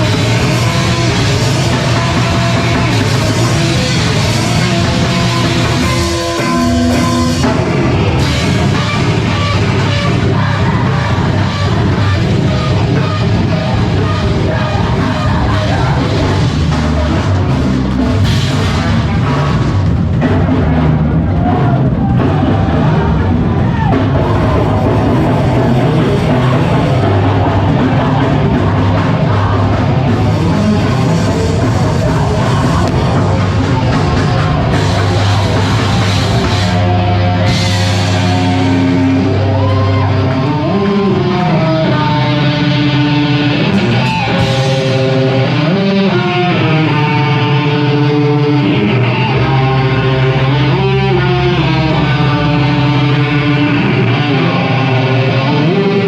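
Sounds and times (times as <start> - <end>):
bending melodic guitar line: 0.0 - 56.0
rock band playing loudly: 0.0 - 56.0.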